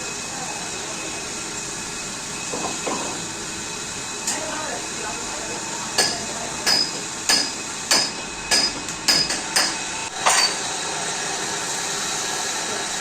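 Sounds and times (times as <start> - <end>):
hammer striking metal: 6.0 - 10.6.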